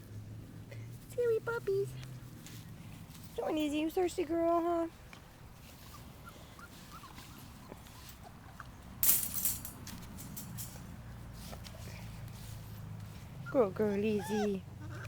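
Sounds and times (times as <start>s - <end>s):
rustling scuffle: 2.3s - 3.8s, 9.0s - 13.4s
puppies squeaking: 5.8s - 8.6s, 13.4s - 15.0s.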